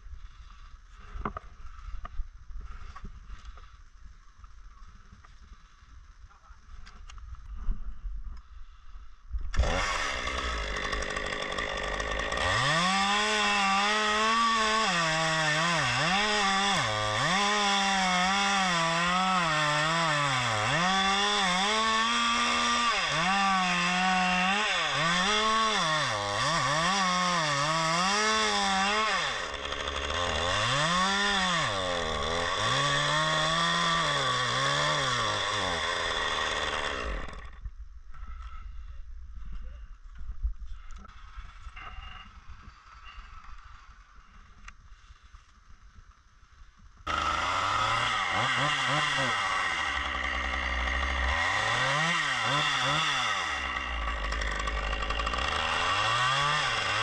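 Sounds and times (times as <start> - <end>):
chainsaw running: 9.5 - 37.6, 47.1 - 57.0.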